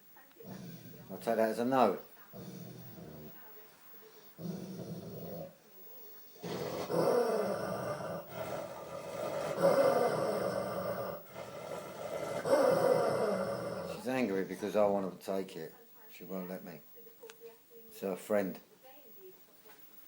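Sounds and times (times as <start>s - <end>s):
dog growling: 0.4s - 3.4s, 4.3s - 5.6s, 6.4s - 14.3s.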